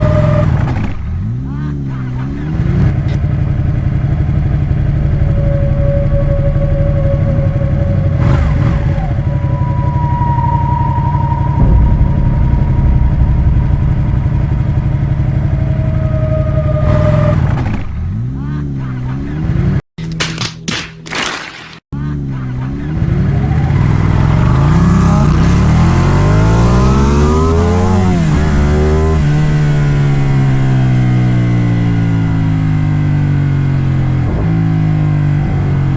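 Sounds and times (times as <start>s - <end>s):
high whines: 4.0s - 18.0s.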